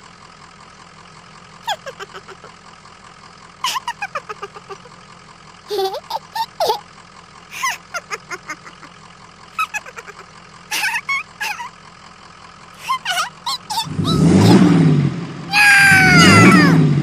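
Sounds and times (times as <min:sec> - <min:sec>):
squeaky sliding cries: 0:01.7 - 0:02.5, 0:03.6 - 0:04.9, 0:05.7 - 0:06.8, 0:07.5 - 0:08.9, 0:09.6 - 0:11.7, 0:12.8 - 0:14.7, 0:15.5 - 0:16.8
vehicle engine revving effect: 0:13.9 - 0:17.0.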